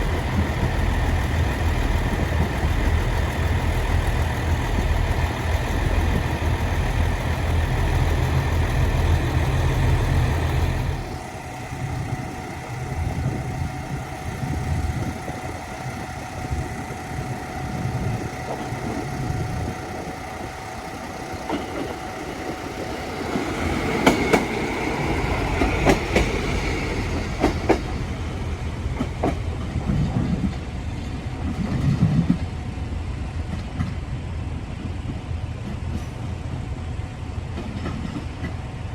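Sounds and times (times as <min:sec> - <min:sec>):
railcar engine humming: 0:00.0 - 0:38.9
railcar rolling rumble: 0:00.0 - 0:38.9.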